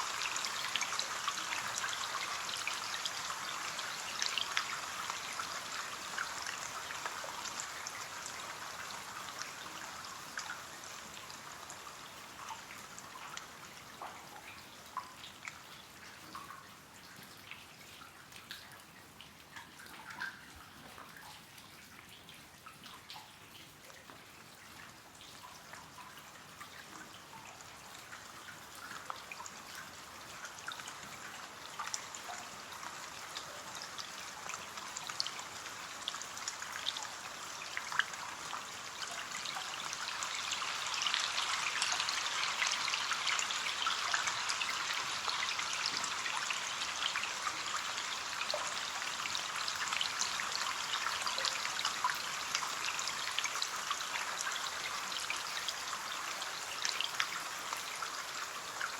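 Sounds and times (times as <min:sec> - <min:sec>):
rain on a window: 0:00.0 - 0:58.9.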